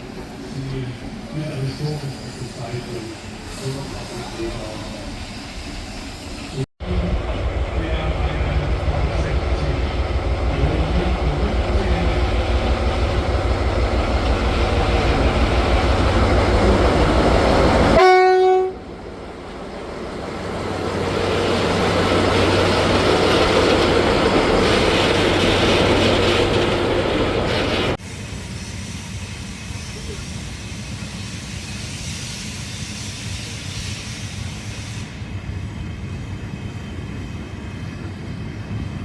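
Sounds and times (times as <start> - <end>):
rail vehicle engine throbbing: 0.0 - 39.0
short horn blast: 18.0 - 18.9.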